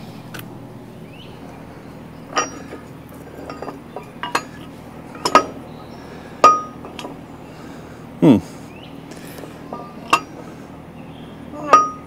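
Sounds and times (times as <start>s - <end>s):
metallic clinks of steel parts: 2.3s - 5.6s, 9.7s - 10.4s.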